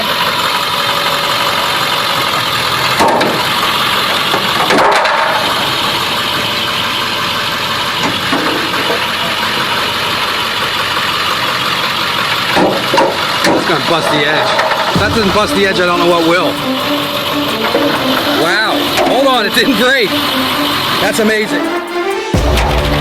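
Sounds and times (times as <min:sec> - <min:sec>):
truck engine running: 0:00.0 - 0:23.0
loud knocks: 0:02.9 - 0:05.8, 0:12.5 - 0:13.8.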